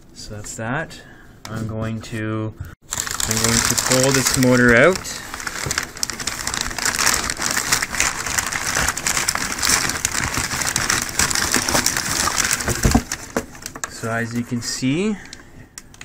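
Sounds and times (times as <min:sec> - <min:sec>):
packaging rustling and crinkling: 0:02.8 - 0:14.6.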